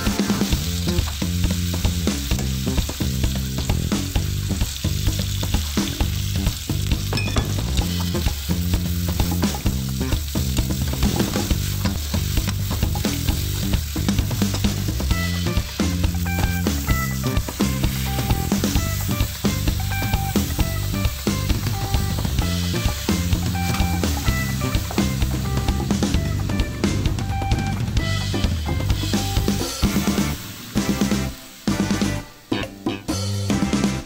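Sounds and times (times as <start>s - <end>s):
meat sizzling in a wok: 0.0s - 34.0s
spatula scraping and knocking pan: 7.0s - 15.0s.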